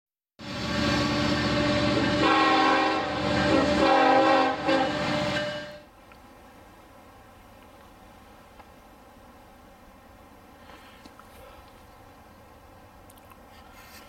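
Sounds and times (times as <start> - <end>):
locomotive air horn chord: 0.4 - 5.9
low locomotive rumble: 0.4 - 14.0.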